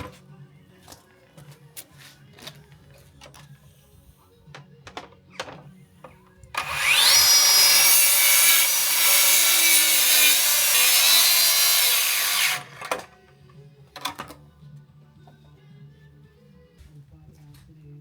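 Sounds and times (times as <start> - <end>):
saw motor whine cutting wood: 6.6 - 13.1.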